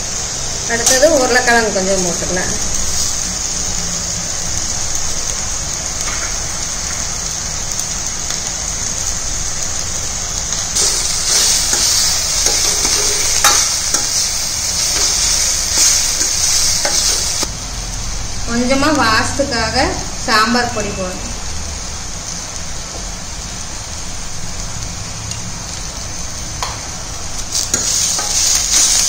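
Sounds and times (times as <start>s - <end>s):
vegetables sizzling in oil: 0.0s - 29.0s
metal spoon scraping a pan: 10.8s - 17.4s, 27.6s - 29.0s.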